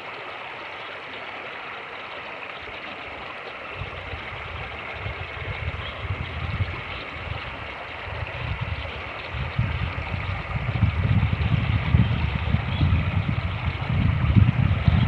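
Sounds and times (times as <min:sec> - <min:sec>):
creek rushing: 0:00.0 - 0:15.0
wind buffeting microphone: 0:03.7 - 0:15.0.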